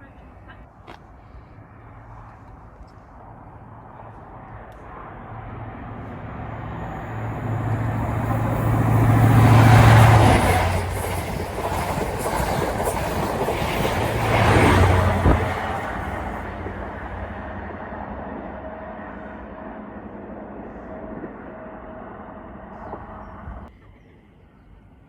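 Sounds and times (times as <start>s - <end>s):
train wheels rushing on rail: 3.7s - 23.9s
steady low hum: 14.9s - 23.7s.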